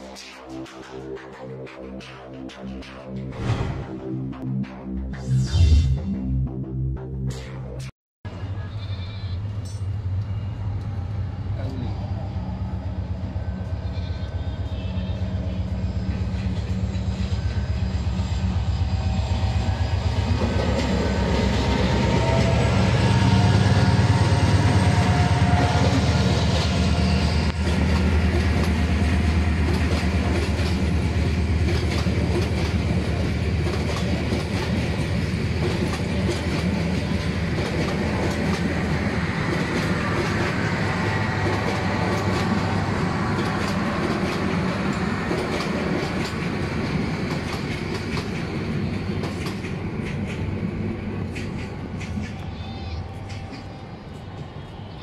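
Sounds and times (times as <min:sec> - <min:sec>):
diesel locomotive engine drone: 0:00.0 - 0:55.0
wheels clacking over rail joints: 0:27.5 - 0:53.8.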